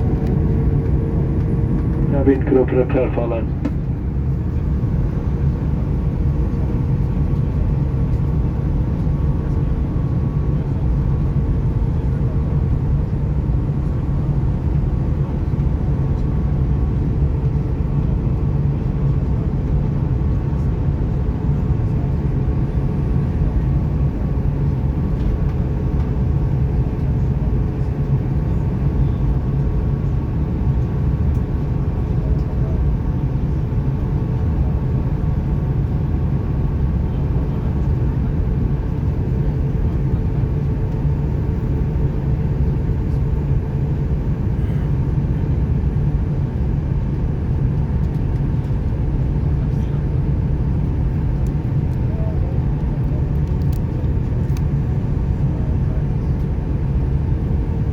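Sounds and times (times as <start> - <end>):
faint steady whine: 0.0 - 5.2
jet engine cabin drone: 0.0 - 57.9.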